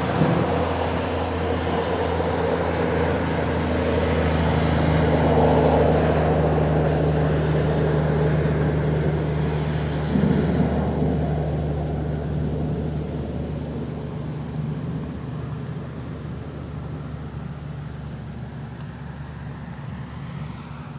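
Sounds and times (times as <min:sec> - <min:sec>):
low mechanical hum: 0:00.0 - 0:20.9
rushing noise: 0:03.4 - 0:15.3.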